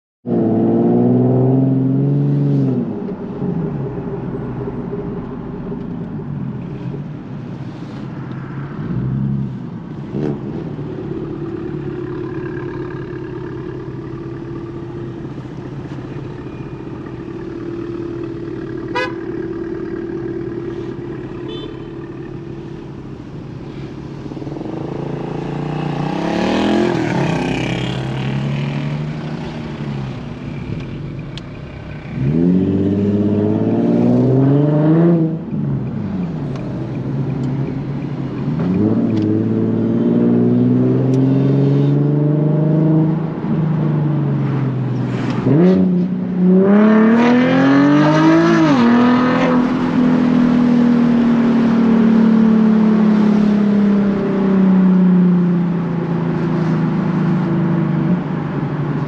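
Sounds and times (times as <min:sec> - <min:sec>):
car engine exhaust note: 0:11.2 - 0:23.2.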